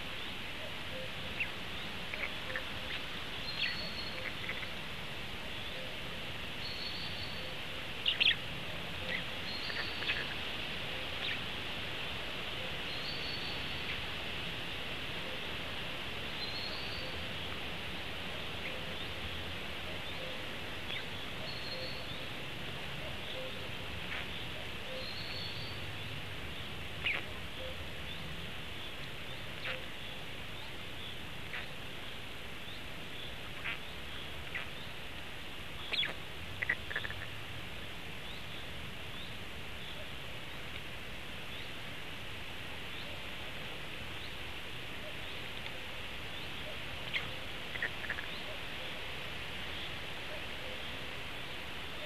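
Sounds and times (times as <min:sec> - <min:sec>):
steady outdoor hiss: 0:00.0 - 0:52.0
bird chirps and calls: 0:00.9 - 0:04.8, 0:06.6 - 0:08.4, 0:09.0 - 0:10.4, 0:35.8 - 0:37.3.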